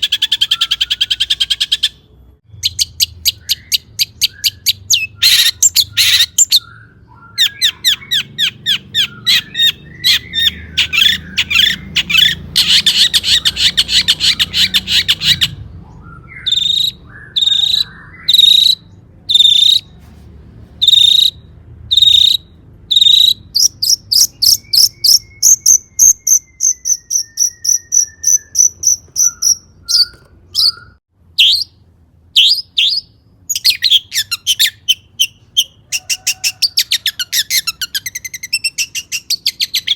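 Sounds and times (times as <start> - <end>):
bird chattering notes: 20.8 - 31.8
bird high trill: 20.8 - 31.8.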